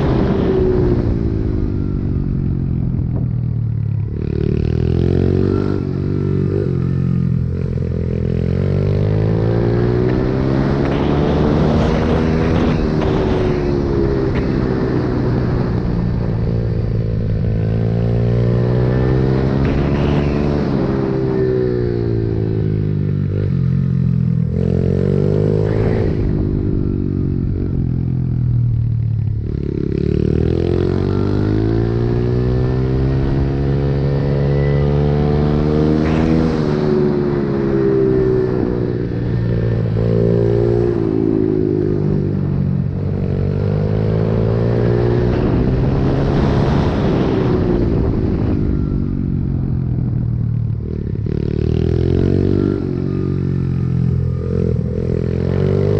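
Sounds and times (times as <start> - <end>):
motorbike engine revving: 4.1 - 16.3, 17.5 - 26.6, 29.6 - 49.7.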